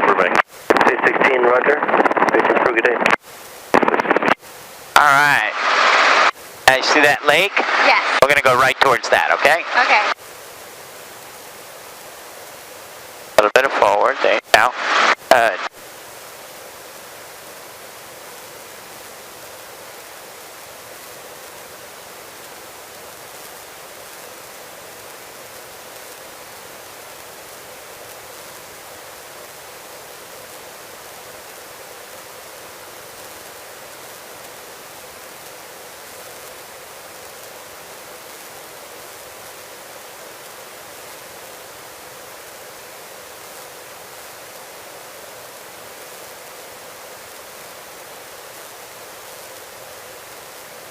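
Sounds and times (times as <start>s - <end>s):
helicopter intercom hiss: 0.0s - 3.2s, 3.8s - 10.2s, 13.3s - 15.8s.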